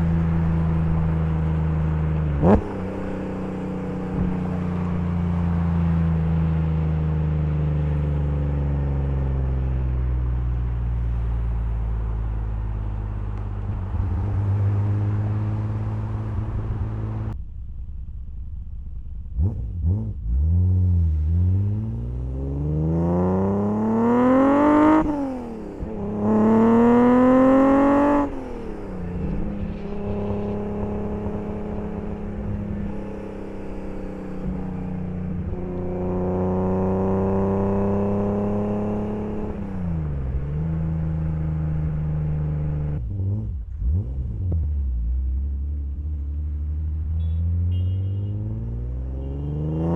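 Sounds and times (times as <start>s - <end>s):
car engine revving: 0.0s - 17.4s, 19.1s - 49.9s.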